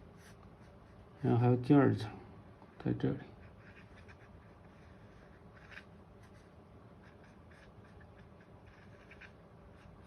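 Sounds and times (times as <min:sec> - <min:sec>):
drawing tool scratching on paper: 0:03.3 - 0:10.0.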